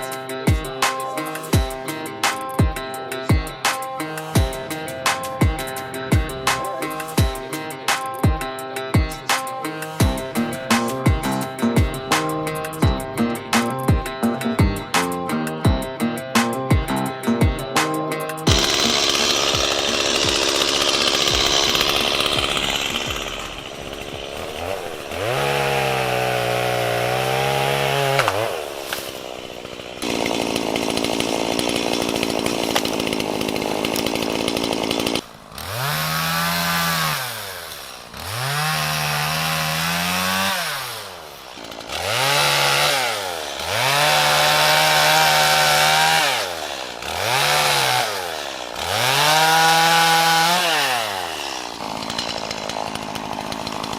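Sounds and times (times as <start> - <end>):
chainsaw engine revving: 0.0 - 15.5, 16.3 - 53.9
chainsaw cutting wood: 0.0 - 53.9.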